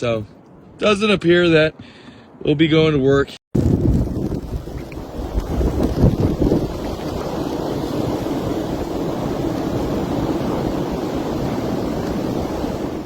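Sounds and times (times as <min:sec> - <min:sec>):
snowstorm wind rushing: 0:03.6 - 0:13.0.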